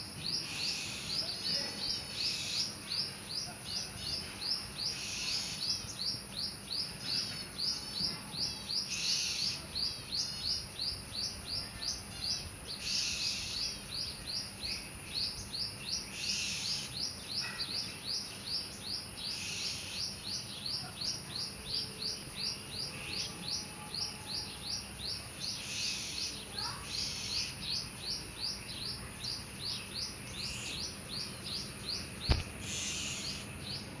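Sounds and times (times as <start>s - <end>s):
bird chirping: 0.0s - 34.0s
sharp knock: 32.2s - 32.5s.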